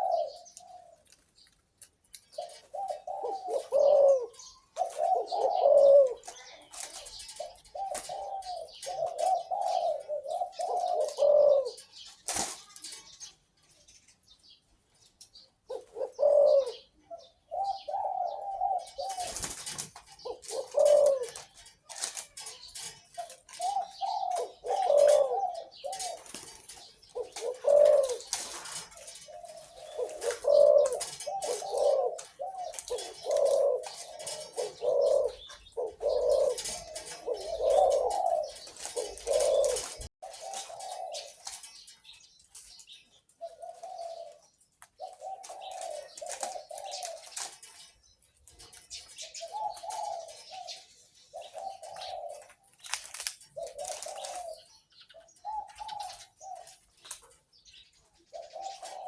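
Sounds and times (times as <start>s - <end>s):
dove cooing: 0.0s - 1.2s, 2.2s - 13.2s, 15.6s - 41.9s, 42.5s - 59.0s.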